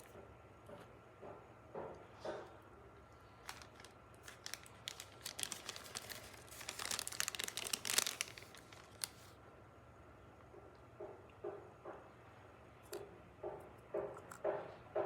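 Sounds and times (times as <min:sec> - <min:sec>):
packaging crinkling and tearing: 0:03.3 - 0:09.4.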